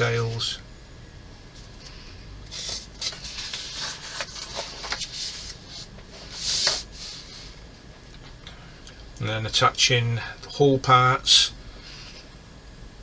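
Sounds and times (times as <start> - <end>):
paper rustling and crinkling: 1.6 - 7.5
page being turned swish: 2.5 - 7.2.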